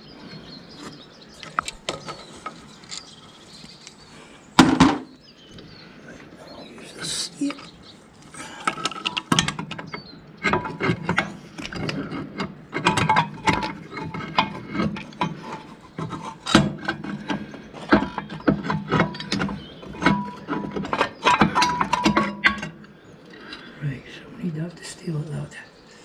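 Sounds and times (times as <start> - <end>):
hand tools clicking on metal: 7.5 - 23.7
struck metal ringing: 8.8 - 22.9.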